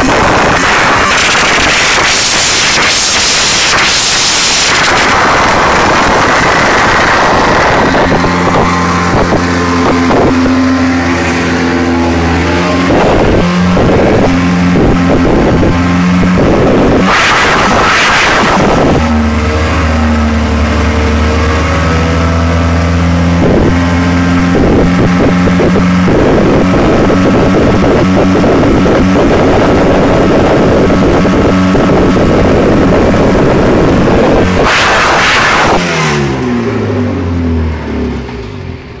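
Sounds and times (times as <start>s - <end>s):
race car engine revving: 0.0s - 39.0s.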